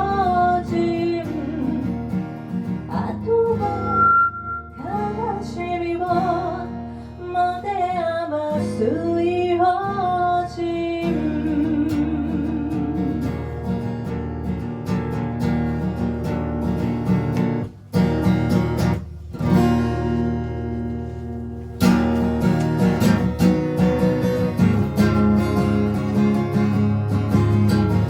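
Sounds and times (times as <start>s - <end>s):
live band with strummed guitar: 0.0s - 9.2s, 10.4s - 28.0s.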